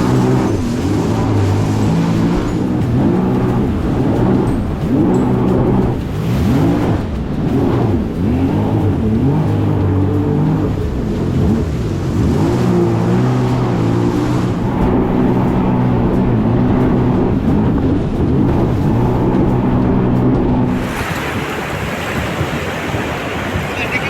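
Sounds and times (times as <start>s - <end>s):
jet ski engine running: 0.0s - 24.0s
wind and water rushing: 0.0s - 24.0s.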